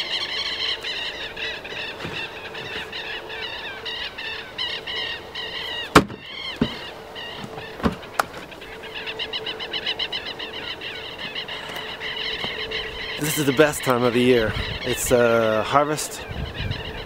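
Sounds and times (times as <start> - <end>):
birds chirping: 0.0 - 17.0
sharp knocks: 5.9 - 6.8.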